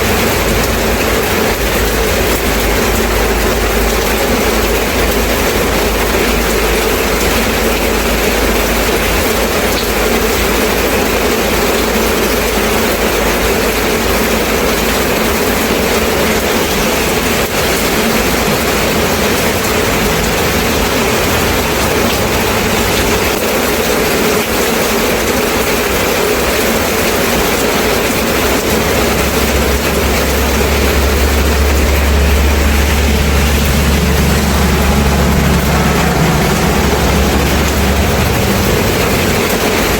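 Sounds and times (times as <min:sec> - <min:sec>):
low rumble: 0:00.0 - 0:09.0, 0:28.1 - 0:39.9
steady rain falling: 0:00.0 - 0:39.9.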